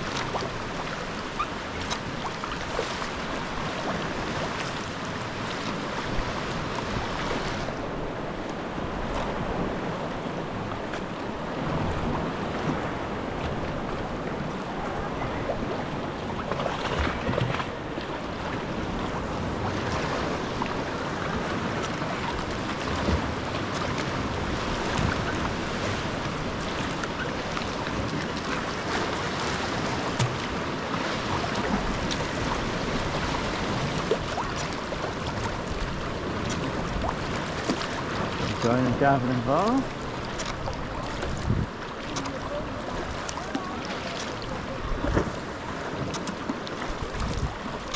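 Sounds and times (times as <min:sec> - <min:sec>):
water splashing around kayak: 0:00.0 - 0:47.9
wind noise on microphone: 0:40.5 - 0:41.8, 0:46.9 - 0:47.7.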